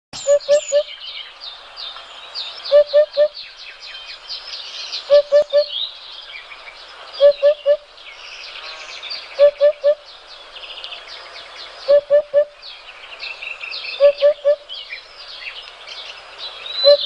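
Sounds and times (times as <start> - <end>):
low hooting bird call: 0.2 - 1.0, 2.6 - 3.4, 5.0 - 5.8, 7.2 - 7.9, 9.3 - 10.1, 11.8 - 12.6, 13.9 - 14.8, 16.7 - 17.0
small birds chirping and trilling: 0.2 - 17.0.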